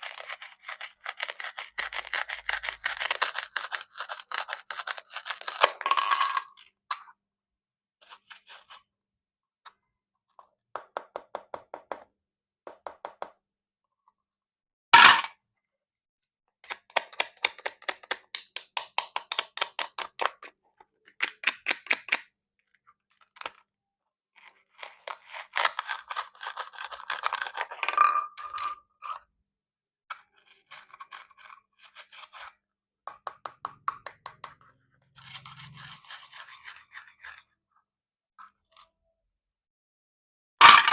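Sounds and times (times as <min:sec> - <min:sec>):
plastic toy fruit being cut: 0:00.0 - 0:05.6, 0:18.9 - 0:22.3, 0:24.4 - 0:27.6.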